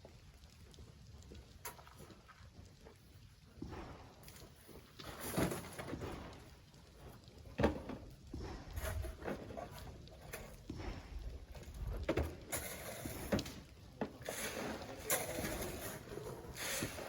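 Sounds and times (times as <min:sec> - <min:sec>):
sand being shoveled: 0:12.5 - 0:13.6, 0:14.2 - 0:17.0.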